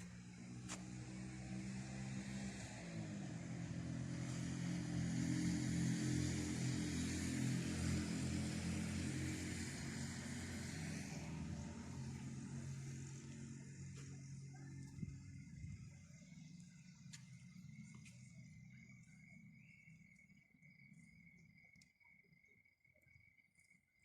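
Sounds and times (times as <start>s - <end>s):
vehicle engine hum: 0.0s - 22.4s.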